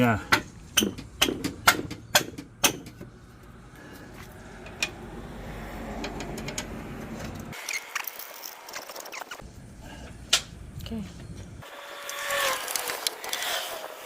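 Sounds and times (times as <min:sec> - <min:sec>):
low mechanical rumble: 0:00.0 - 0:07.6
sharp metallic knocks: 0:00.3 - 0:03.1.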